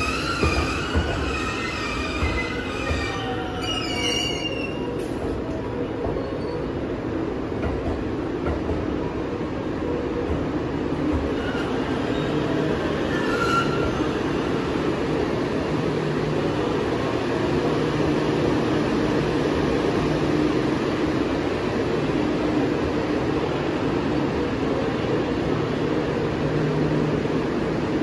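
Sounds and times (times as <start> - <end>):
train rumbling: 0.0 - 28.0
short high squeal: 13.1 - 14.1.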